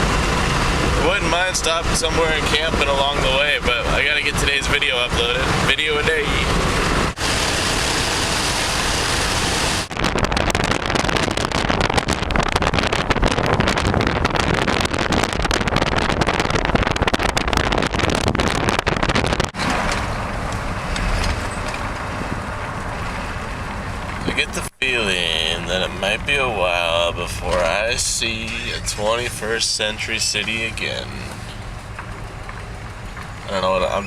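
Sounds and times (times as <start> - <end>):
wind buffeting microphone: 0.0 - 24.4
vehicle road noise: 0.0 - 34.0.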